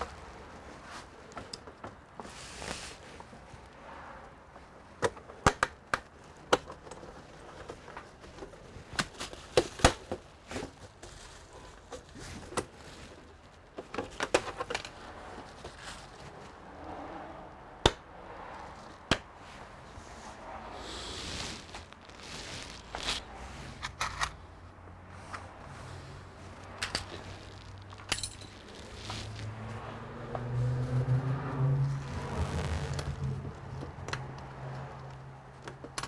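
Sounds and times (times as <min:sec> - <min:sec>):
clicks of plastic and metal parts: 0:05.0 - 0:10.2, 0:13.8 - 0:15.0, 0:23.8 - 0:24.4.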